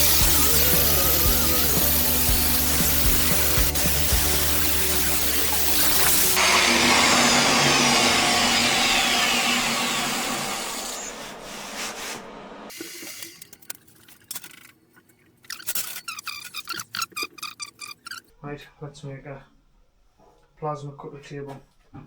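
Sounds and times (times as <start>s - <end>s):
power tool abrading metal: 0.0s - 13.5s.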